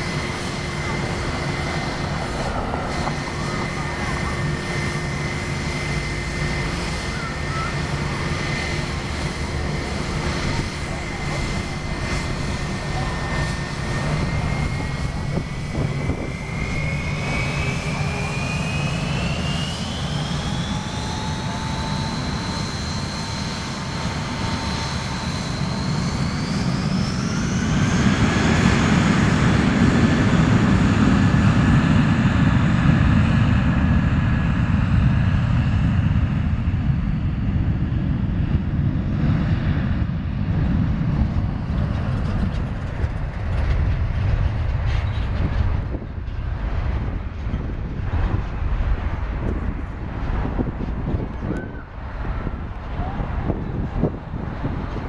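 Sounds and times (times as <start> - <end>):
jet engine deep rumble: 0.0 - 55.0
jet engine whine: 0.0 - 55.0.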